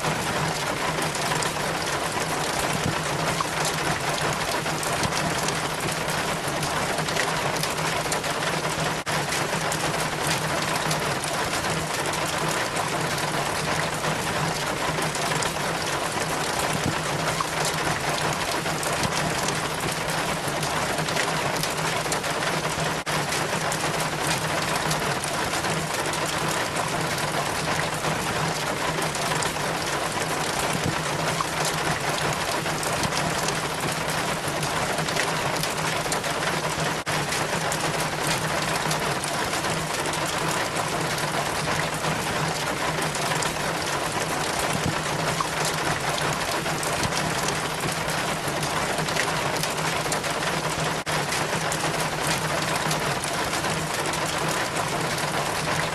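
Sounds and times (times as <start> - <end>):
rainwater dripping down rain chain: 0.0 - 55.9.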